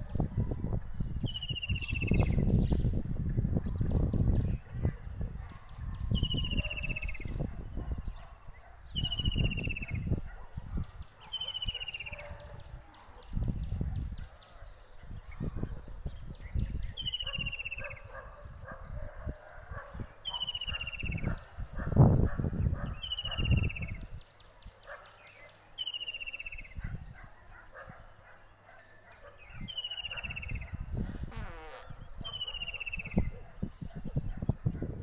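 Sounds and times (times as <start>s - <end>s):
birds chattering: 22.6s - 33.5s
bird call sliding downward: 31.3s - 31.9s.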